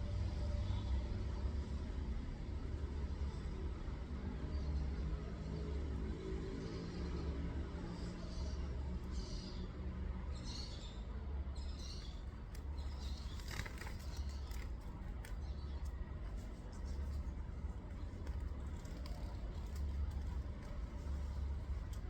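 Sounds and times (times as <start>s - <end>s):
small birds chirping: 4.5s - 22.0s
steady low rumble: 11.6s - 22.0s.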